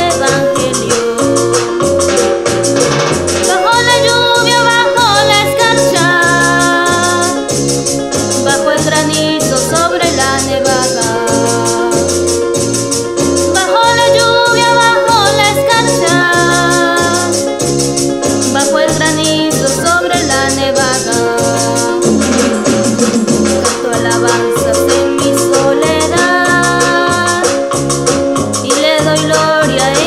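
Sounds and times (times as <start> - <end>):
girl singing: 0.0 - 1.8, 3.5 - 7.5, 8.3 - 12.4, 13.5 - 17.5, 18.5 - 22.2, 23.7 - 27.7, 28.6 - 30.0
electronic keyboard bass and chords: 0.0 - 30.0
steady shaker beat: 0.0 - 30.0.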